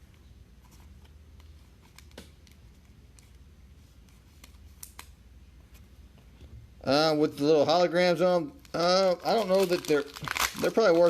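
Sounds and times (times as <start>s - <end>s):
trading cards being handled: 8.6s - 11.0s.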